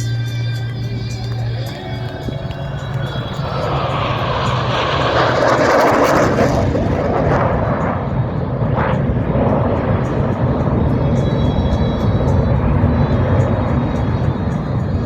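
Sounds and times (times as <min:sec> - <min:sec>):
jet flying past: 0:00.6 - 0:15.0.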